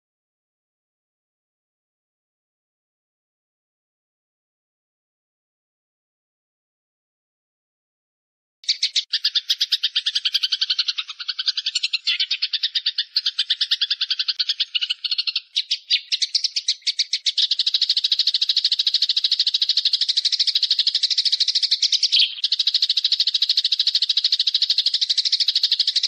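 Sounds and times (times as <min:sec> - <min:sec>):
songbird trilling chirps: 0:08.6 - 0:26.0.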